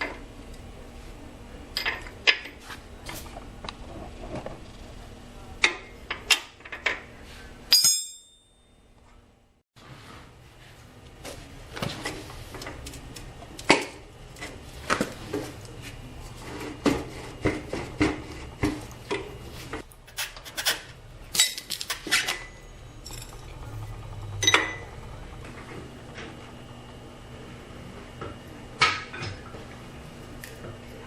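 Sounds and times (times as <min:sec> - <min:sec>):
metal tools clinking and clanking: 0:20.1 - 0:24.8.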